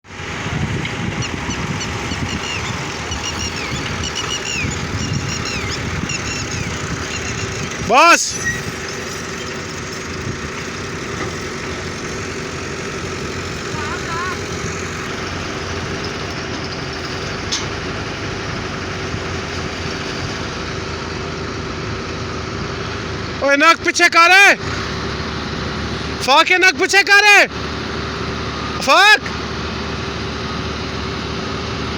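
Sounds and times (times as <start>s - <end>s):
diesel engine rumbling: 0.0s - 31.9s.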